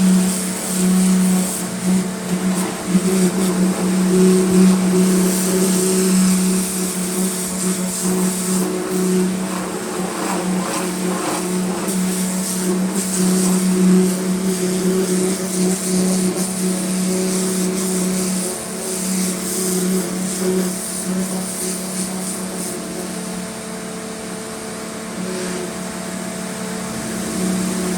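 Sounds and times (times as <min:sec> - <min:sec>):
water jet hissing: 0:00.0 - 0:23.4
pressure washer motor hum: 0:00.0 - 0:27.9.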